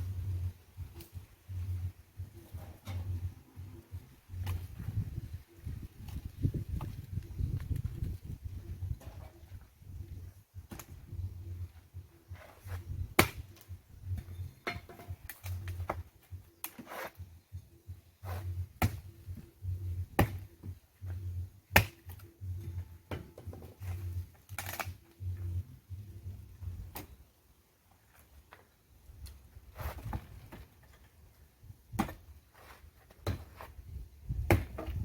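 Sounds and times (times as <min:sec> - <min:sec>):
dull low thumps: 0:17.5 - 0:21.8, 0:33.8 - 0:35.0.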